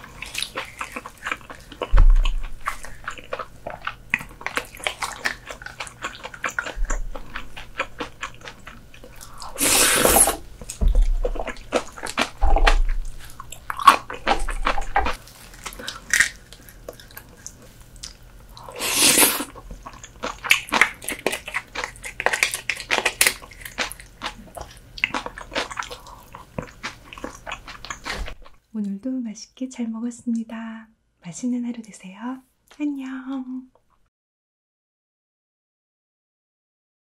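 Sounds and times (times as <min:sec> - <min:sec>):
wet chewing and smacking: 0:00.0 - 0:09.6, 0:10.5 - 0:18.7, 0:19.3 - 0:28.6
loud noisy eating sounds: 0:11.3 - 0:28.3.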